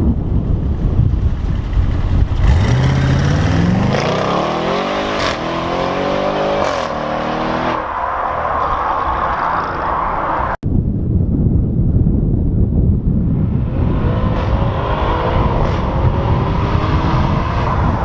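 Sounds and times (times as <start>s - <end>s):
wind noise on microphone: 0.0s - 18.0s
car engine accelerating hard: 2.3s - 7.8s.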